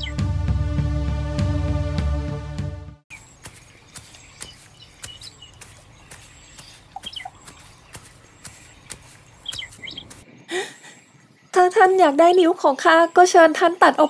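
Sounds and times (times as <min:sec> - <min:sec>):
background music: 0:00.0 - 0:03.0
short bird chirps: 0:03.1 - 0:11.5.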